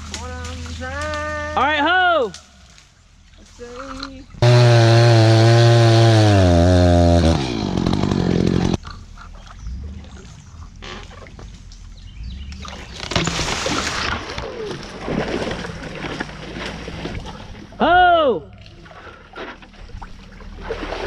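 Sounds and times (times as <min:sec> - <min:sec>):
water splashing and sloshing: 0:00.0 - 0:01.6, 0:02.3 - 0:04.4, 0:08.8 - 0:21.0
chainsaw at full throttle: 0:04.4 - 0:08.8.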